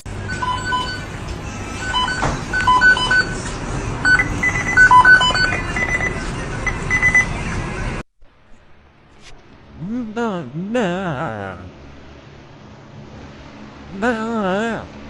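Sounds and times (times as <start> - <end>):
short electronic beeps: 0.3 - 1.1, 1.8 - 7.3.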